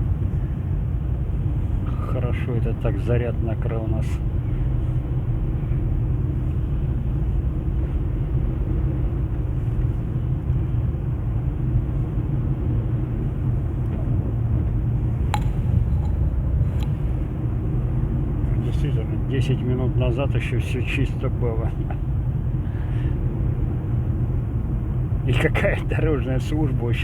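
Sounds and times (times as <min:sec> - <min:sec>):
car cabin rumble: 0:00.0 - 0:27.0
sharp click: 0:15.3 - 0:17.0.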